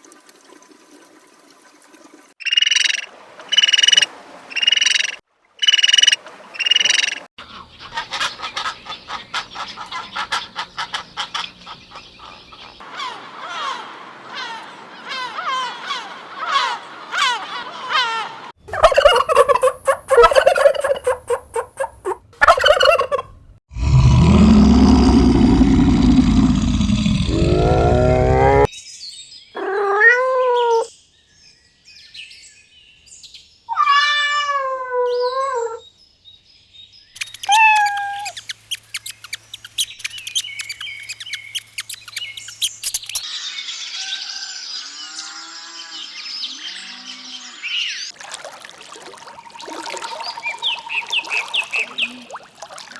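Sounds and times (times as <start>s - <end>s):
fowl-like calls: 12.8s - 23.3s, 37.2s - 43.3s
wavering pitched animal calls: 15.2s - 23.3s, 24.9s - 28.7s, 29.6s - 30.9s, 37.2s - 43.3s
clicking and chirping: 18.7s - 23.2s, 37.2s - 43.3s.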